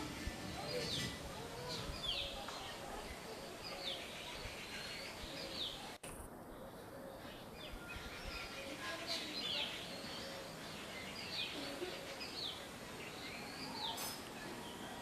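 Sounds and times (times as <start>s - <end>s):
outdoor hiss: 7.5s - 15.0s.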